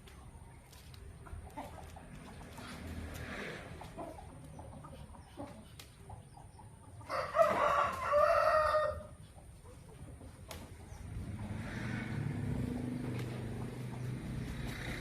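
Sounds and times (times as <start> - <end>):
faint chicken clucks: 0.1 - 11.5
rooster crowing: 7.1 - 9.1.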